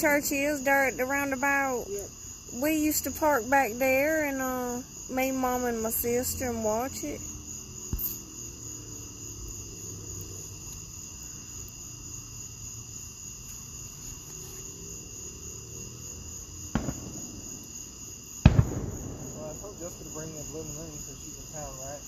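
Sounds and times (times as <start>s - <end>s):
night insects chirring: 0.0s - 22.0s
sharp thumps: 7.9s - 8.2s.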